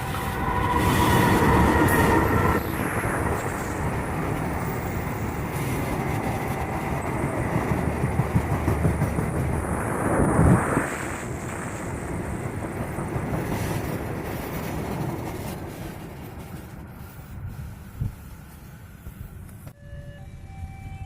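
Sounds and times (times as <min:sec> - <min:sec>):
train rumbling past: 0:00.0 - 0:21.0
steady high tone: 0:19.8 - 0:21.0.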